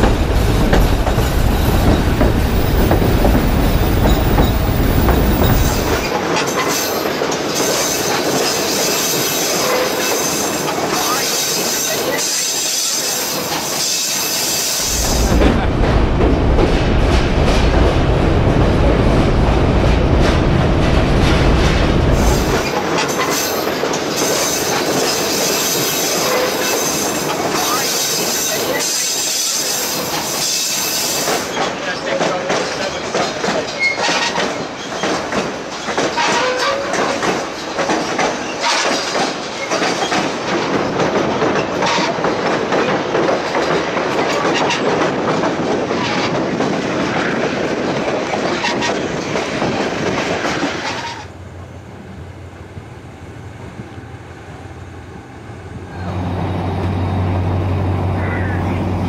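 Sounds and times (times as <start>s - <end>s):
heavy low rumble: 0.0s - 6.0s, 14.8s - 22.6s
train rumbling and rattling on track: 0.0s - 59.0s.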